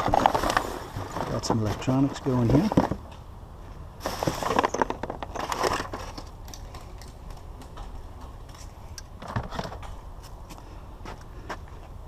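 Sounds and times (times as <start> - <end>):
plastic and metal clattering: 0.0 - 3.2, 4.0 - 7.9, 9.2 - 10.0.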